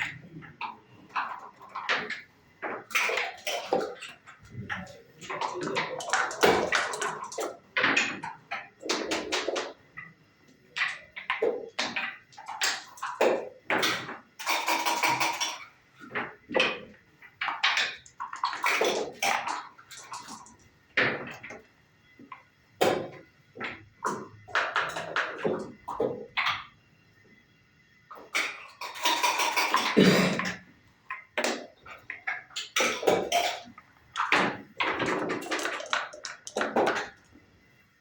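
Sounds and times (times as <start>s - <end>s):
checkers clacking on board: 1.2s - 9.8s, 32.4s - 37.1s
dice rattling: 35.3s - 37.1s.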